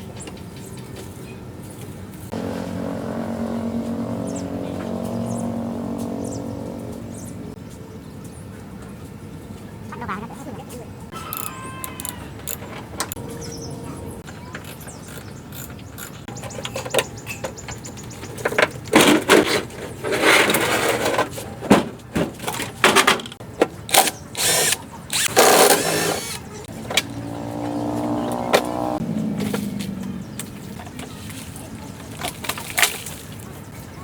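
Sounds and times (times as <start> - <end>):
pitched hum: 2.3 - 7.6
short noisy tool bursts: 24.0 - 26.5.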